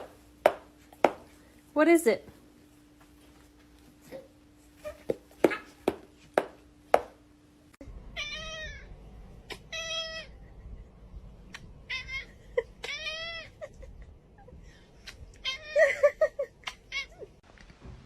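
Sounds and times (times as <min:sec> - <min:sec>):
sharp taps or knocks: 0:00.0 - 0:01.3, 0:05.1 - 0:07.2
cat meowing: 0:08.2 - 0:08.9.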